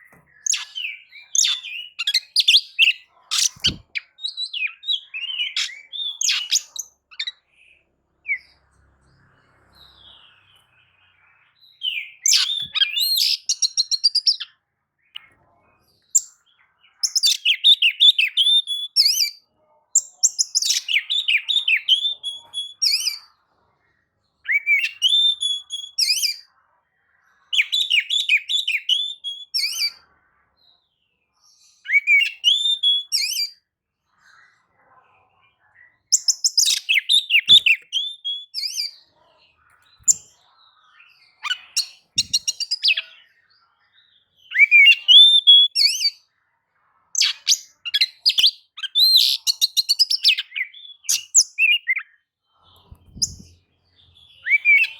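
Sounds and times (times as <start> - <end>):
songbird singing whistled phrases: 0.2 - 7.4, 11.7 - 14.5, 17.0 - 19.4, 20.0 - 23.3, 24.4 - 26.5, 27.5 - 30.0, 31.8 - 33.6, 36.1 - 39.0, 41.2 - 43.2, 44.4 - 46.2, 47.2 - 52.2, 54.2 - 54.9.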